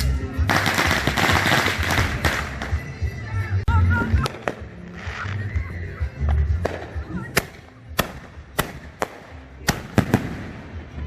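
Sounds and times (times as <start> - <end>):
fireworks booming and cracking: 0.5 - 2.8, 6.6 - 11.0.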